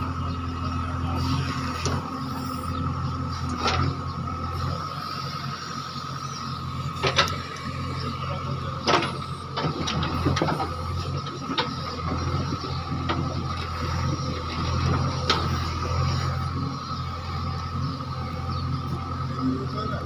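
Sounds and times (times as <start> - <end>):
digger diesel engine running: 0.0 - 20.0
metallic clanks of digger bucket: 7.0 - 7.5, 8.8 - 10.8.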